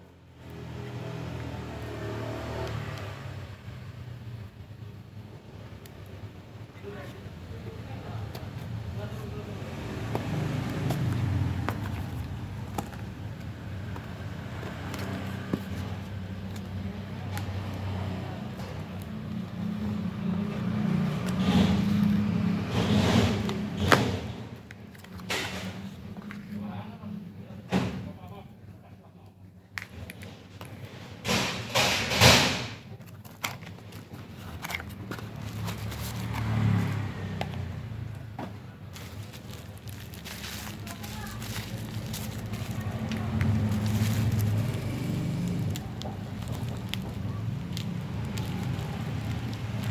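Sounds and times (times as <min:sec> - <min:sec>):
packaging rustling: 0:33.0 - 0:37.0, 0:38.8 - 0:49.9.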